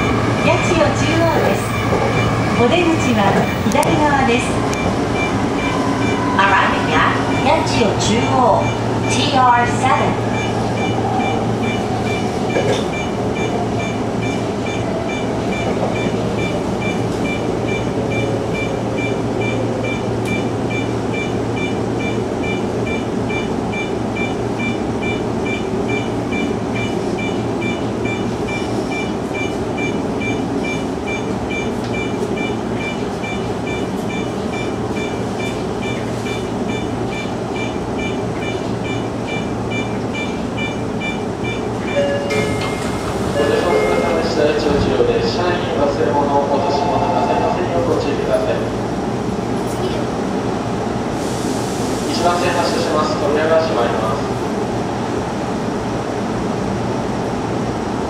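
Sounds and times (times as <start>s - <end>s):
train rumbling on track: 0.0s - 58.0s
high beep: 4.7s - 6.3s, 10.3s - 44.3s.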